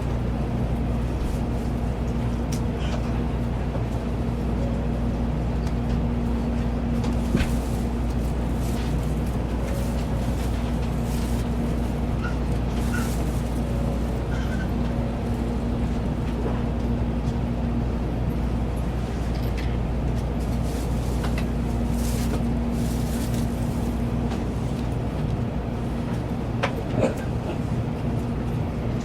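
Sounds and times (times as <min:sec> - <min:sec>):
train cabin rumble: 0:00.0 - 0:29.0.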